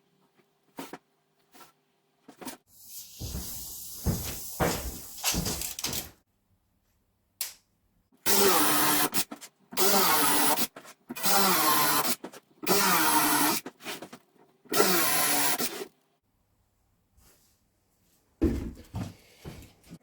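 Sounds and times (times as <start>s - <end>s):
power drill bursts: 14.8s - 15.8s.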